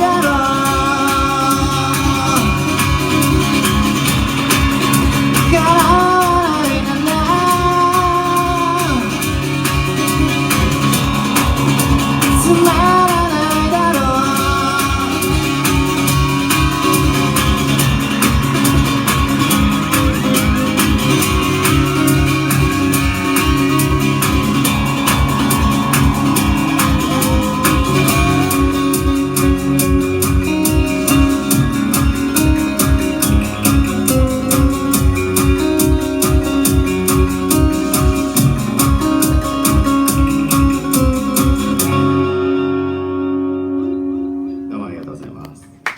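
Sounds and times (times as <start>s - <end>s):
person singing: 0.0s - 3.4s, 5.4s - 17.3s, 26.0s - 31.5s
steady drum beat: 0.0s - 42.0s
electric guitar: 0.0s - 45.9s.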